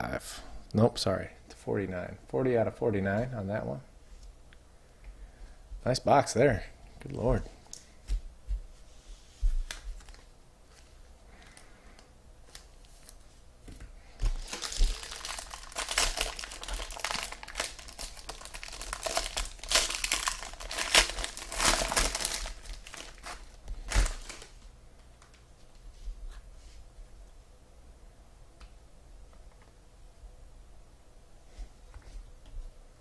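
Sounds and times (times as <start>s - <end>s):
plastic wrapper tearing and crinkling: 9.7s - 10.3s, 14.2s - 24.6s.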